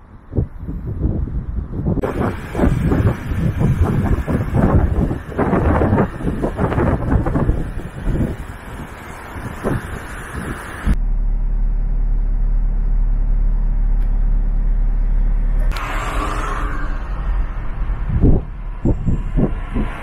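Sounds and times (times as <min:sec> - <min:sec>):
wind buffeting the microphone: 0:00.0 - 0:11.0, 0:16.4 - 0:20.0
car engine and road rumble: 0:00.0 - 0:20.0.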